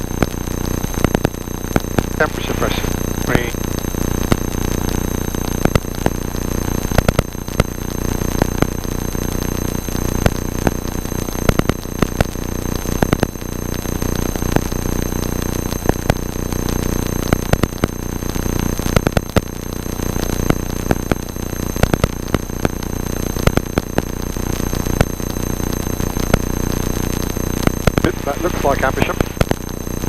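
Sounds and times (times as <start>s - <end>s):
aircraft engine drone: 2.2s - 3.5s, 28.0s - 29.4s.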